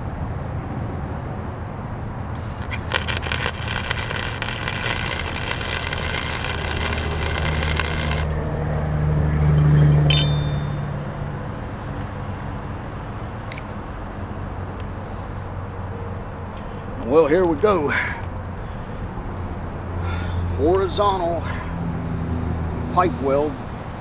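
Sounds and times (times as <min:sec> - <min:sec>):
road traffic: 0:00.0 - 0:24.0
passing vehicle engine drone: 0:00.6 - 0:13.4, 0:18.4 - 0:24.0
welding arc crackling: 0:02.4 - 0:08.3.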